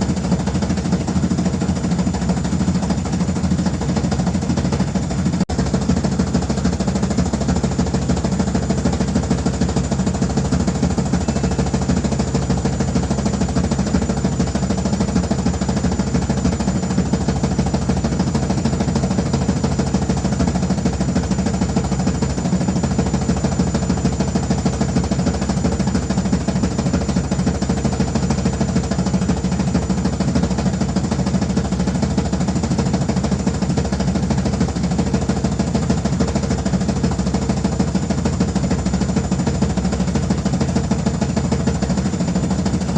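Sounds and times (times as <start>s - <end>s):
washing machine running: 0.0s - 42.9s.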